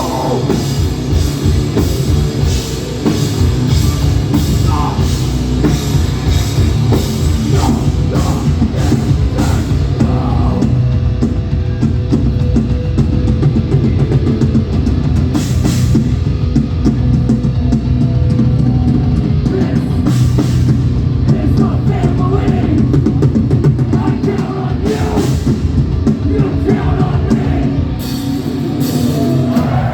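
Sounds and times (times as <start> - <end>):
vocals: 0.0 - 1.2, 3.7 - 11.8, 19.0 - 29.9
hardcore band playing: 0.0 - 29.9.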